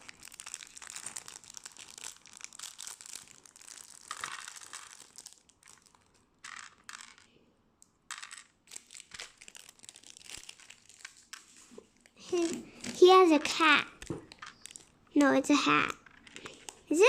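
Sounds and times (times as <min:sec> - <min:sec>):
plastic packaging crinkling: 0:00.0 - 0:07.3, 0:08.3 - 0:15.2, 0:15.9 - 0:17.0
small plastic parts clicking: 0:04.0 - 0:09.5, 0:13.9 - 0:15.3, 0:15.9 - 0:16.8.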